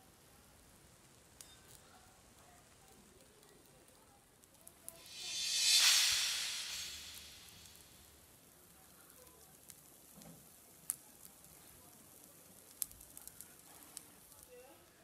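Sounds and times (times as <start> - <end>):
omelette sizzling in a frying pan: 0.0 - 5.1, 8.5 - 15.0
small sharp pops and crackles: 9.1 - 14.8.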